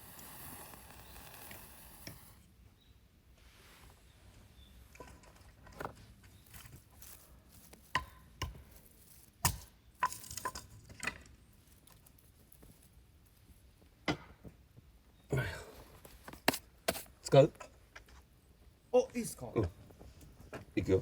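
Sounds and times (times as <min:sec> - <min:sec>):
camping gear knocks and clinks: 0:04.9 - 0:12.2.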